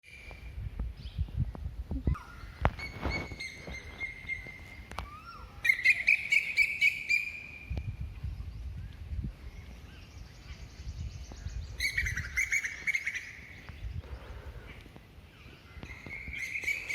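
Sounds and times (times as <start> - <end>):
bird whistling and trilling: 2.2 - 7.7, 11.8 - 13.4, 15.9 - 16.9.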